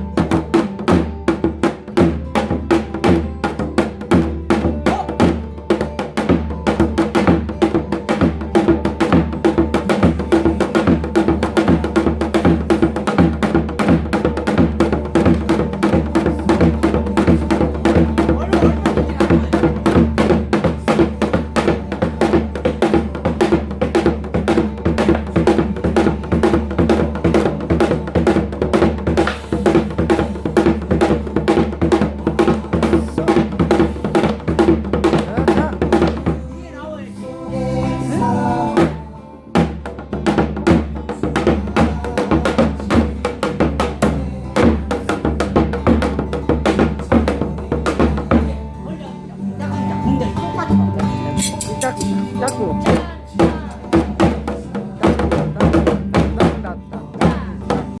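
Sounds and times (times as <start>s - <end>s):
deep drumhead beats: 0.0s - 49.0s, 49.6s - 58.0s
sharp drum stick strikes: 51.3s - 53.0s.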